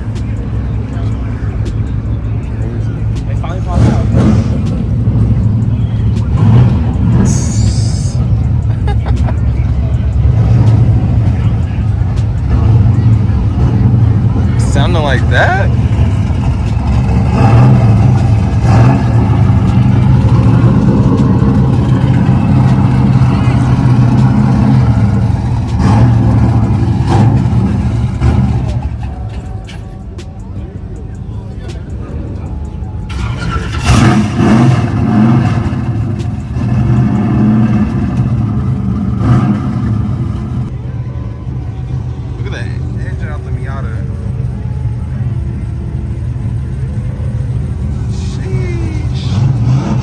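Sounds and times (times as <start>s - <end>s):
car engine droning and blipping: 0.0s - 50.0s.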